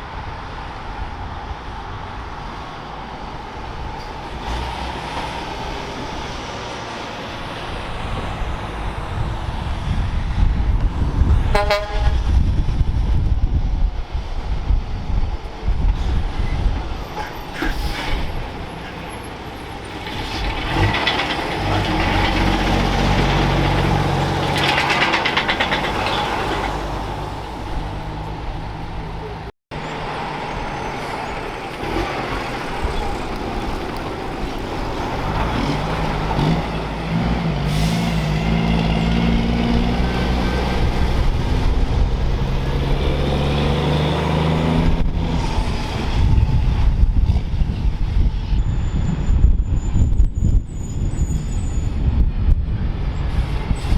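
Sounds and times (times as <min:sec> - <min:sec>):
diesel trucks pulling past: 0:00.0 - 0:53.9
air brakes hissing: 0:16.1 - 0:21.0, 0:37.6 - 0:38.5.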